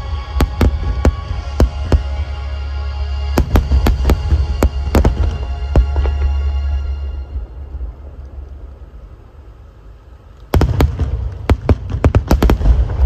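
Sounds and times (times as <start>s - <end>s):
sharp fireworks cracks and bangs: 0.0s - 2.2s, 3.3s - 6.5s, 10.4s - 13.0s
low rumble of fireworks: 0.0s - 13.0s.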